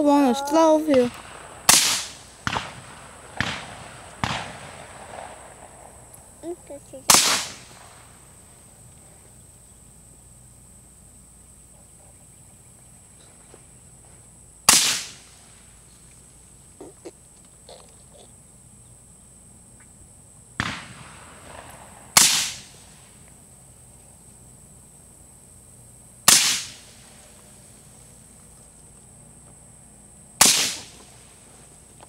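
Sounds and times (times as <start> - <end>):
suppressed rifle shots: 0.9 - 6.1, 7.1 - 8.2, 14.7 - 15.3, 20.6 - 22.8, 26.3 - 27.0, 30.4 - 31.2
weaker gunshot crack: 0.9 - 6.1, 7.1 - 8.2, 14.7 - 15.4, 20.6 - 23.0, 26.2 - 27.2, 30.4 - 31.3.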